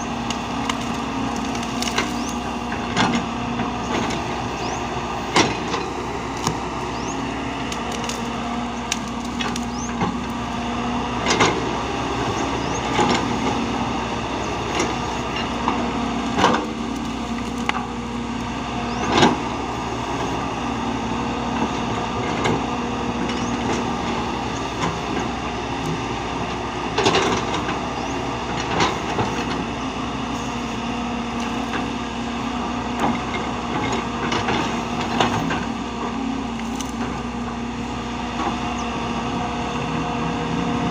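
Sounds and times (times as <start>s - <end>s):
heavy machine engine running: 0.0s - 40.9s
sharp cracks and knocks: 0.2s - 2.4s, 7.7s - 10.2s.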